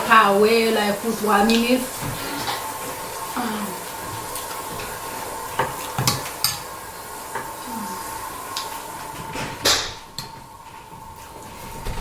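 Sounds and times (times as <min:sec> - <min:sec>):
dishes and cutlery clinking: 0:04.8 - 0:06.7.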